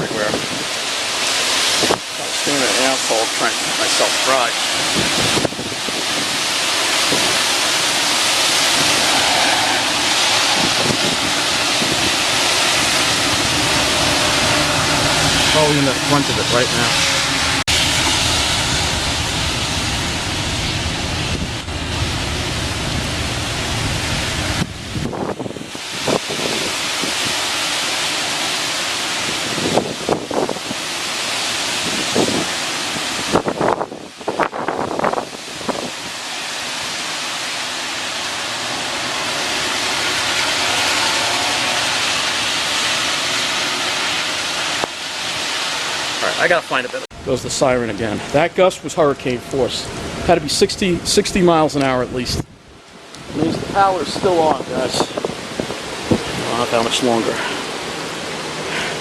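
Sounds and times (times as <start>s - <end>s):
wind buffeting microphone: 0.0s - 2.8s, 4.5s - 27.8s, 28.5s - 37.1s, 49.2s - 59.0s
driving rain: 0.0s - 59.0s
wind gusting: 0.0s - 59.0s.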